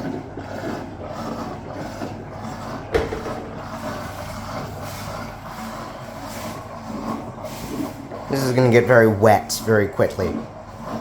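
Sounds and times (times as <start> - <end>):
washing machine pumping out water: 0.0 - 11.0
sharp knock: 3.0 - 4.3.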